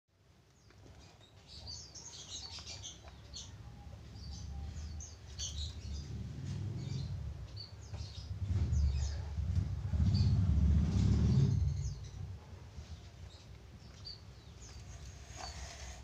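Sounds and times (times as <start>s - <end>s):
small birds chirping: 0.2s - 16.0s
low rumble: 4.0s - 12.5s.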